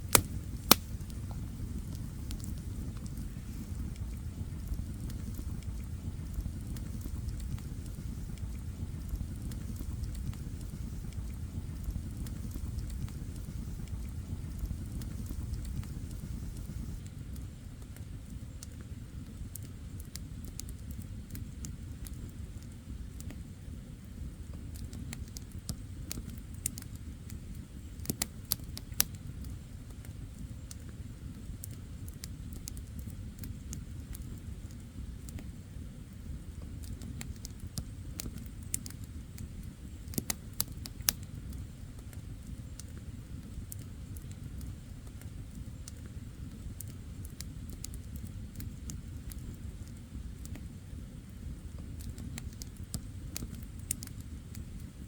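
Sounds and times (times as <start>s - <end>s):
campfire burning: 0.0s - 55.0s
fire crackles and pops: 0.0s - 55.0s.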